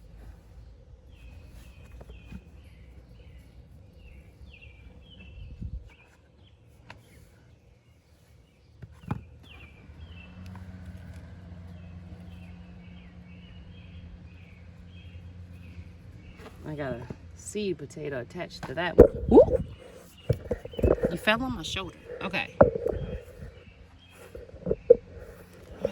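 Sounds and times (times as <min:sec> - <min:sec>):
songbird chirping: 0:00.0 - 0:25.9
steady low hum: 0:12.9 - 0:25.9.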